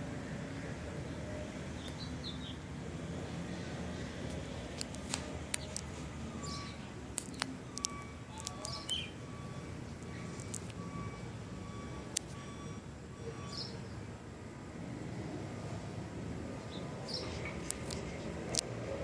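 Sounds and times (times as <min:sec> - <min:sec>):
sharp clicks: 0:04.2 - 0:05.9, 0:07.1 - 0:09.1, 0:10.0 - 0:10.8, 0:17.3 - 0:18.8
high bird chirps: 0:05.6 - 0:11.0, 0:13.2 - 0:14.0.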